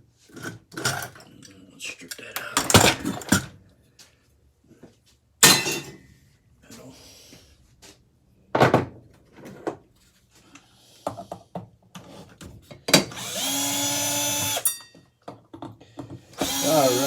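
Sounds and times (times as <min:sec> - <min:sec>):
power drill whining: 0:13.1 - 0:14.8, 0:16.4 - 0:17.0.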